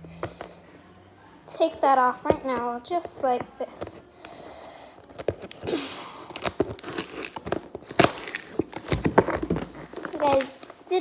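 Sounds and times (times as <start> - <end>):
cardboard and plastic rustling: 1.5 - 11.0
clicks and crackles: 4.2 - 11.0.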